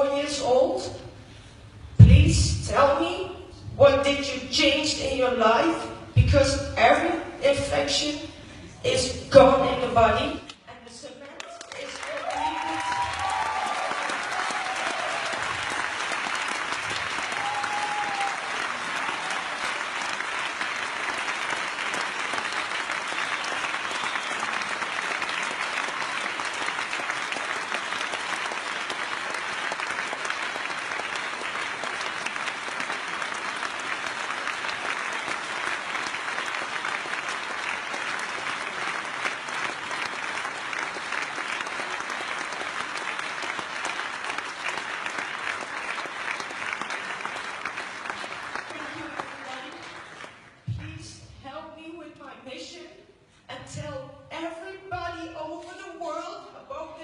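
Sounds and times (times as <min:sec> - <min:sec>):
audience applauding: 0:11.4 - 0:50.6.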